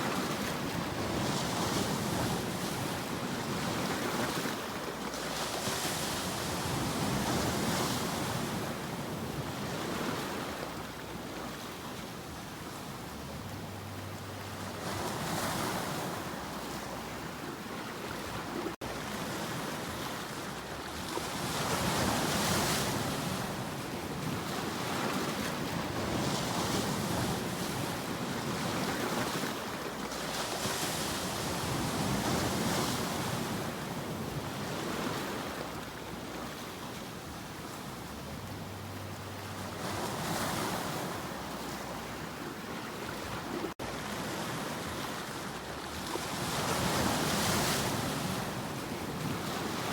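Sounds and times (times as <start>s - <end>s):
waves breaking on shore: 0.0s - 49.9s.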